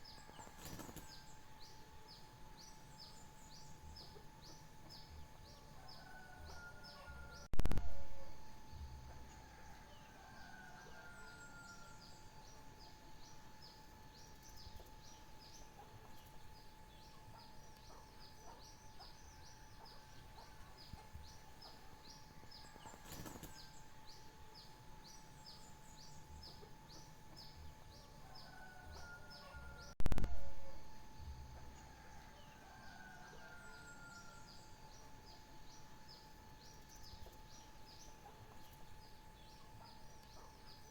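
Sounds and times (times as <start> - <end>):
faint steady hum: 0.0 - 40.9
brief crackle: 7.6 - 8.0, 30.0 - 30.5.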